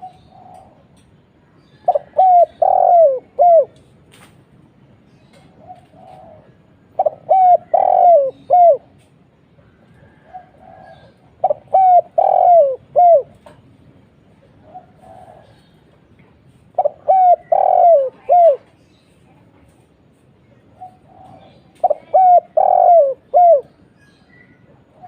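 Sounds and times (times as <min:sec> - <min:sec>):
dove cooing: 0:00.0 - 0:00.9, 0:01.7 - 0:03.8, 0:05.4 - 0:09.0, 0:09.9 - 0:13.6, 0:14.6 - 0:15.8, 0:16.7 - 0:18.8, 0:20.7 - 0:23.9.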